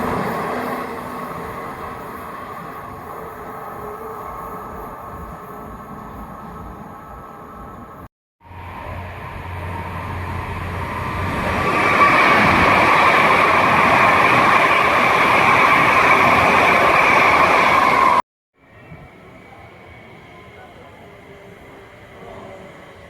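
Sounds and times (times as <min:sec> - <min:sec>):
high whine: 0:00.0 - 0:18.2
train rumble and rail noise: 0:00.0 - 0:23.0.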